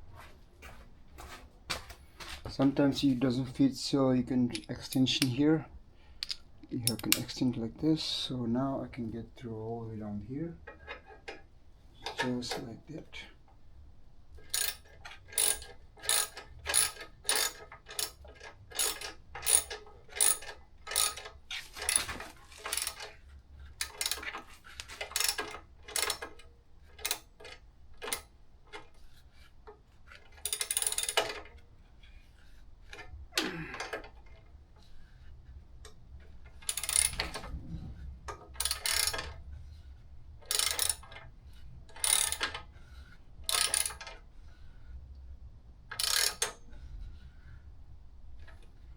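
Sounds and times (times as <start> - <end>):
socket ratchet tightening a bolt: 6.2 - 7.3, 14.4 - 22.0, 22.7 - 23.2, 23.8 - 28.3, 30.2 - 31.4, 36.6 - 37.3, 38.6 - 39.3, 40.5 - 41.2, 41.9 - 42.6, 43.5 - 44.2, 45.9 - 46.6.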